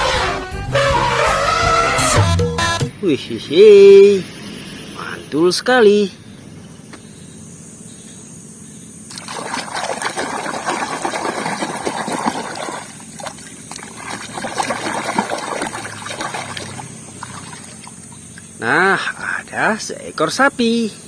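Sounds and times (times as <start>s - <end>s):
water trickling and splashing: 9.1s - 18.6s.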